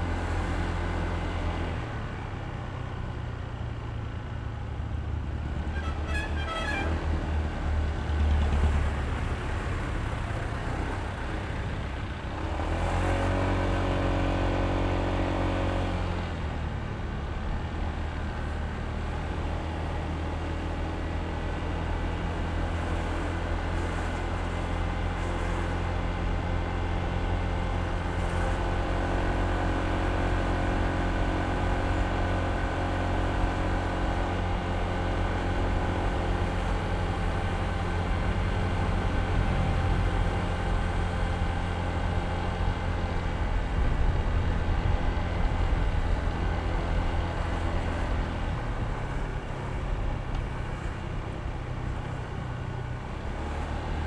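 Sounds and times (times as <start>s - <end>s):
scooter engine droning: 27.7s - 54.0s.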